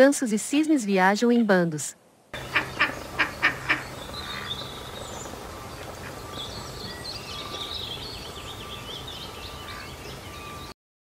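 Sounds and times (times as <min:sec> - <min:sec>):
duck quacking: 0:02.4 - 0:04.5
small birds chirping: 0:02.4 - 0:10.8.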